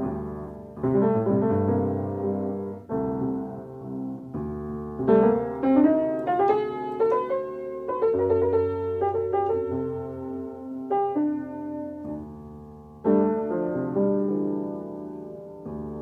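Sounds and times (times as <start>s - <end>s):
solo piano music: 0.0s - 16.0s.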